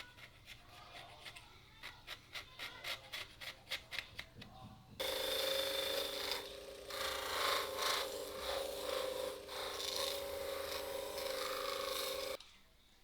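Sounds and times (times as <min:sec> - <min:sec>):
irregular scraping strokes: 0:05.0 - 0:12.4.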